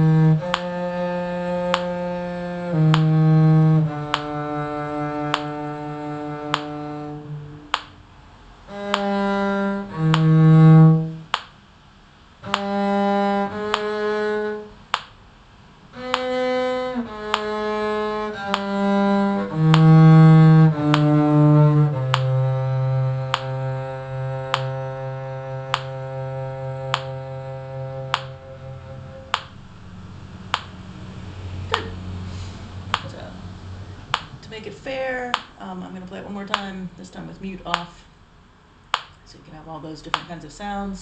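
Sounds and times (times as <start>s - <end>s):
steady metronome tick: 0.0s - 8.0s, 8.7s - 11.6s, 12.4s - 15.2s, 15.9s - 31.1s, 32.9s - 33.1s, 34.0s - 34.5s, 36.4s - 36.8s, 38.9s - 39.2s
muted bowed string instrument: 0.0s - 11.4s, 12.4s - 37.7s.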